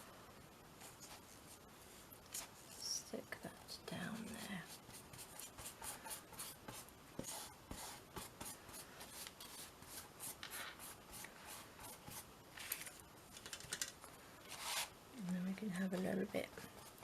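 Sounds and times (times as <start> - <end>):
brush strokes on paper: 0.8 - 12.3, 14.5 - 15.0.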